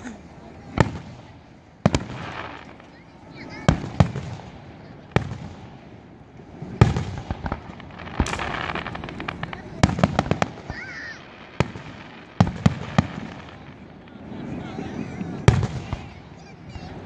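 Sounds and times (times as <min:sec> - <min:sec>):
firework shells bursting: 0:00.7 - 0:14.3.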